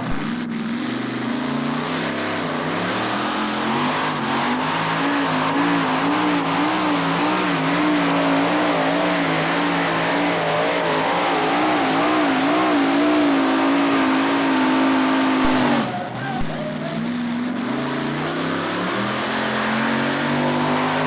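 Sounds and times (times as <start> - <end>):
tractor engine roaring under load: 0.0 - 21.0.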